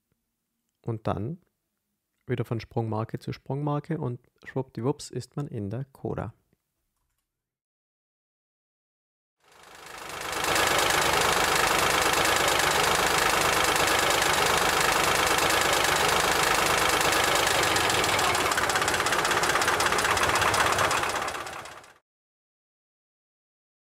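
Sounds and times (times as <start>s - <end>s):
car engine running: 9.5s - 22.0s.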